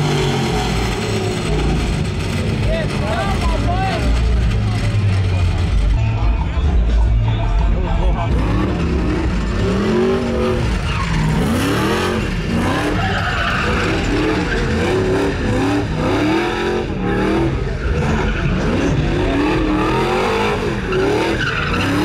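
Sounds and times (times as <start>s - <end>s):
truck engine revving: 0.0s - 22.0s
tyres squealing: 8.4s - 22.0s.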